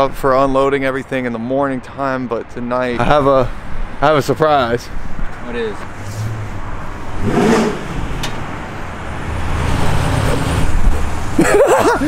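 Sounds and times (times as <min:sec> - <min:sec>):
vv eight engine rumbling: 0:00.1 - 0:12.0.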